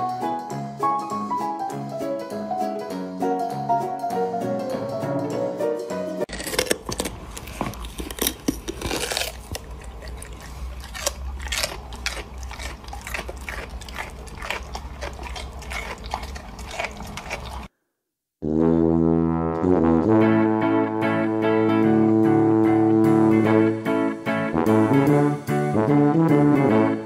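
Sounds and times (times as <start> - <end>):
dog chewing hard toy: 6.3 - 17.7
plucked guitar music: 20.2 - 26.0.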